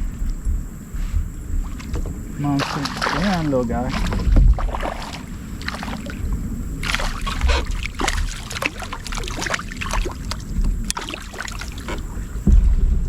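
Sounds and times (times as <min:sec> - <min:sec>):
fish knocking and tapping in kayak: 0:00.0 - 0:13.0
wind rumble on microphone: 0:00.0 - 0:13.0.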